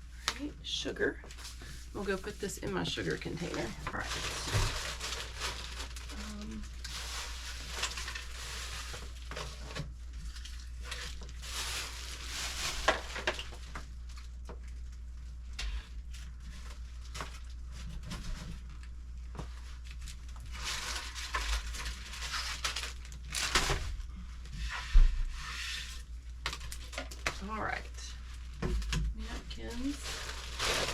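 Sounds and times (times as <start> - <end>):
bags and boxes rustling: 1.3 - 14.2, 26.5 - 30.9.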